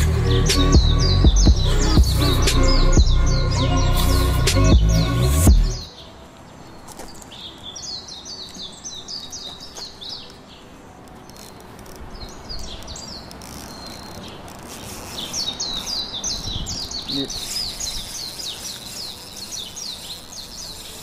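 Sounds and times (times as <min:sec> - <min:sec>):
loud music sting: 0:00.0 - 0:05.9
faint outdoor background: 0:00.0 - 0:21.0
songbird chirping: 0:00.0 - 0:21.0.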